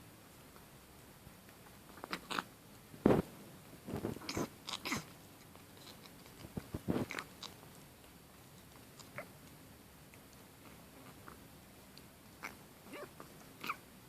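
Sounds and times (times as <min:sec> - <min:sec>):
kitten snorting: 0:02.0 - 0:02.5, 0:03.9 - 0:05.2, 0:05.8 - 0:07.7.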